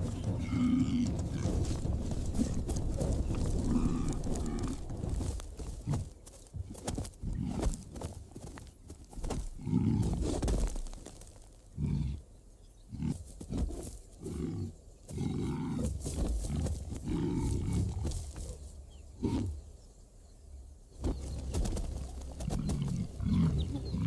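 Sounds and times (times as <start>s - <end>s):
large animal growling and grunting: 0.0s - 6.1s, 9.5s - 10.4s, 12.9s - 18.2s, 22.4s - 24.0s.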